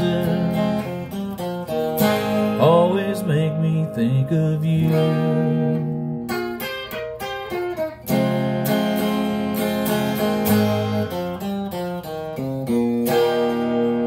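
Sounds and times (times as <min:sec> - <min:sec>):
acoustic guitar country ballad: 0:00.0 - 0:14.0.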